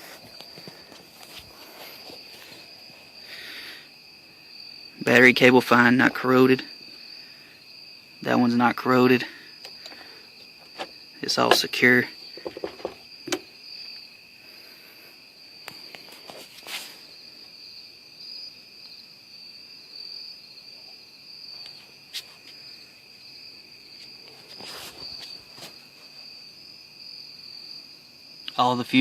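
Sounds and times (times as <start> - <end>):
insects trilling: 0.0 - 29.0
handling clicks and knocks: 10.6 - 11.8, 12.4 - 13.4.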